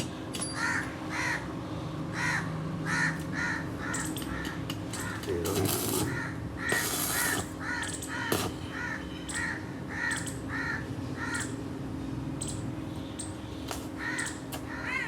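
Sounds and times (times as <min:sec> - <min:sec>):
crows cawing: 0:00.5 - 0:11.6, 0:13.9 - 0:15.0.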